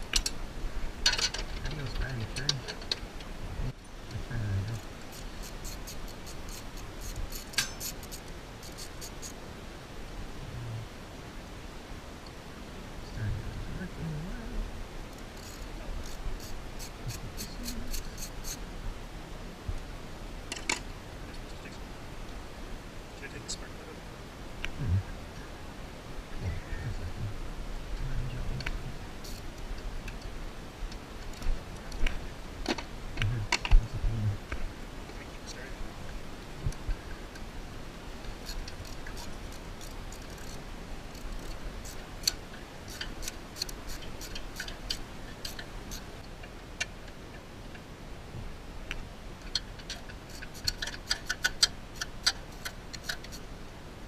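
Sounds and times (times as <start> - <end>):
faint low hum: 0.0 - 54.0
light clicks and scrapes: 4.6 - 9.4, 15.2 - 18.6, 38.3 - 46.1, 49.5 - 53.5.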